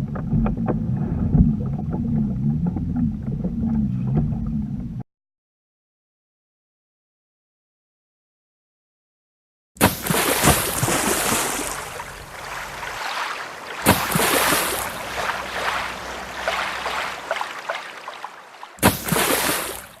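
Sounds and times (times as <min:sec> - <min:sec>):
water splashing against kayak: 0:09.8 - 0:20.0.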